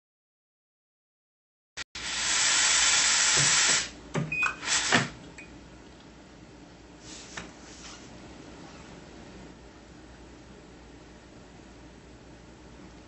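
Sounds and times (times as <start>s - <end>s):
compressed air hiss: 2.0s - 4.0s, 4.6s - 5.2s
short air bursts: 2.0s - 4.0s, 4.6s - 5.2s.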